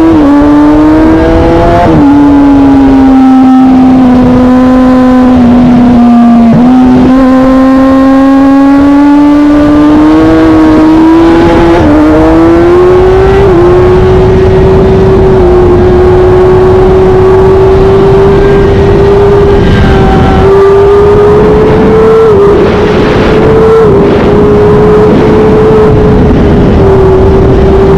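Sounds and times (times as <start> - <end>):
vehicle engine at full throttle: 0.0 - 27.9.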